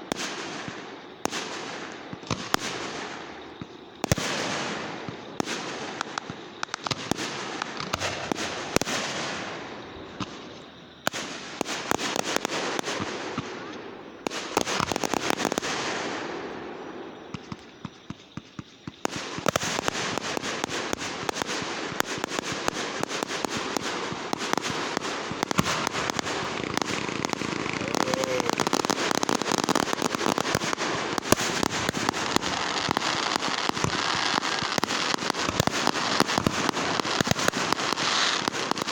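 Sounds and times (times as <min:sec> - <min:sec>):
fireworks bangs and crackles: 0:00.0 - 0:38.9
fireworks hissing bursts: 0:17.3 - 0:38.9.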